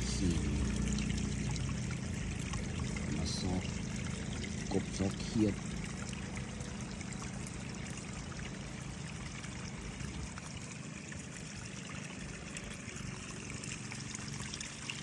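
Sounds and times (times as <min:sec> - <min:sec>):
water trickling: 0:00.0 - 0:15.0.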